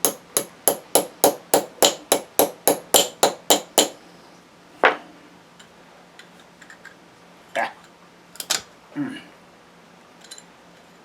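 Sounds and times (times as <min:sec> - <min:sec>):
hammer tapping on metal: 0:00.0 - 0:04.0.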